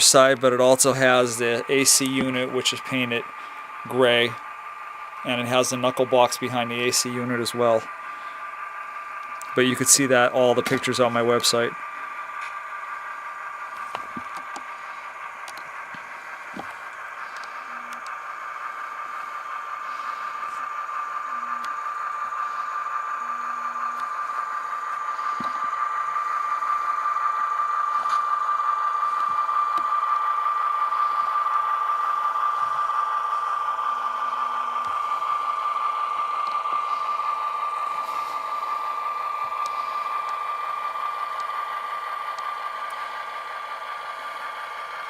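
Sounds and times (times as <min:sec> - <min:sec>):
diesel engine sound from speaker: 0:00.0 - 0:45.0
model train hum and rattle: 0:00.0 - 0:45.0.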